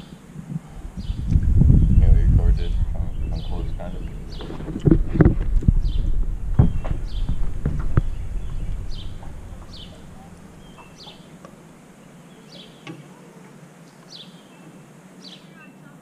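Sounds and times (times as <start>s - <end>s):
bird calling: 0.0s - 16.0s
low rumble: 0.3s - 11.9s.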